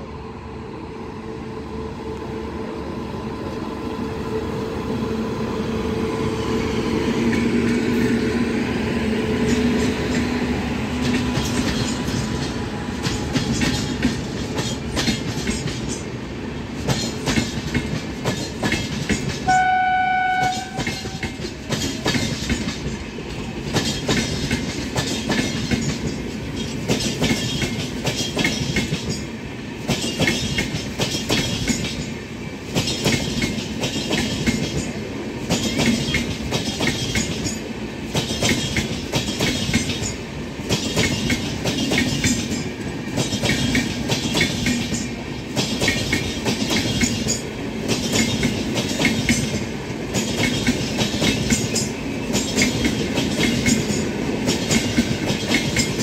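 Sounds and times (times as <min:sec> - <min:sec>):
electric locomotive hum: 0:00.0 - 0:56.0
train wheels clacking on rails: 0:05.6 - 0:56.0
train horn: 0:19.4 - 0:21.5.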